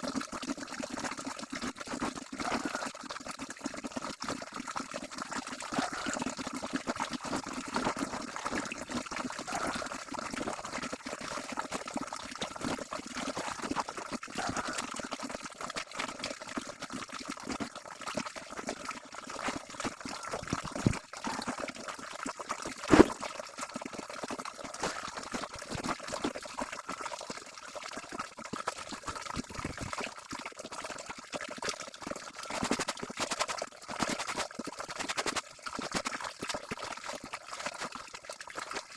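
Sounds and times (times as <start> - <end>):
sharp knock: 22.9 - 23.1.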